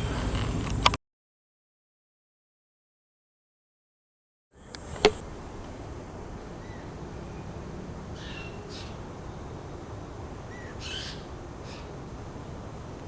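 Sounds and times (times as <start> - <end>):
short bird calls: 5.1 - 13.0
low outdoor rumble: 5.2 - 13.0.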